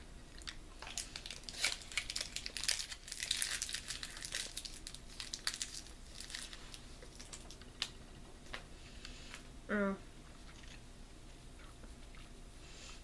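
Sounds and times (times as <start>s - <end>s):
candy wrapper crinkling: 0.4s - 8.0s.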